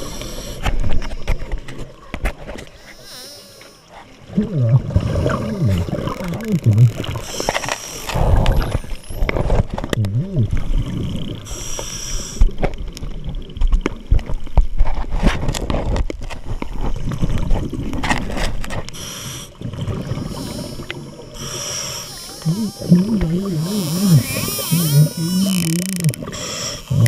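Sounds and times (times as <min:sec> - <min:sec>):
regulator hissing inhalations: 0:00.0 - 0:00.7, 0:07.2 - 0:08.2, 0:11.4 - 0:12.5, 0:19.0 - 0:19.6, 0:20.2 - 0:22.8, 0:26.2 - 0:27.0
gurgling exhaled bubbles: 0:04.2 - 0:11.6, 0:19.5 - 0:27.0.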